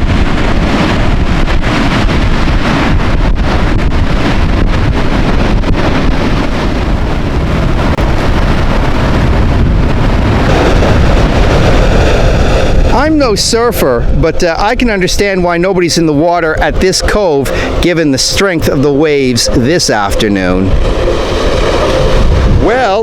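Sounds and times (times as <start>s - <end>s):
heavy surf breaking: 0.0s - 23.0s
wind buffeting microphone: 0.0s - 23.0s.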